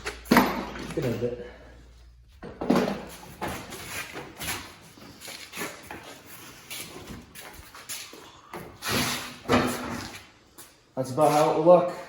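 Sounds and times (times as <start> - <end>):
tools and parts rattling: 0.0 - 1.5.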